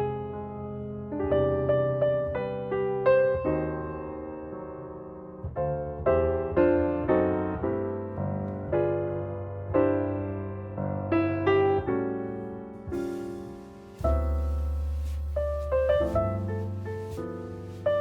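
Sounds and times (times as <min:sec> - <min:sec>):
slow gentle piano melody: 0:00.0 - 0:18.0.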